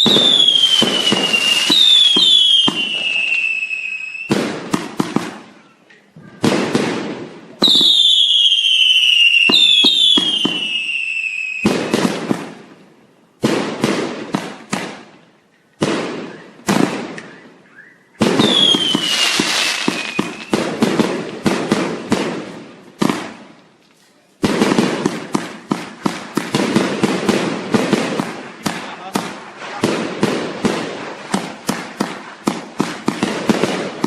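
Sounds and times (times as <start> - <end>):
falling firework whistles: 0.0 - 4.7, 7.6 - 12.3, 16.1 - 20.8
fireworks crackling bangs: 0.0 - 34.0.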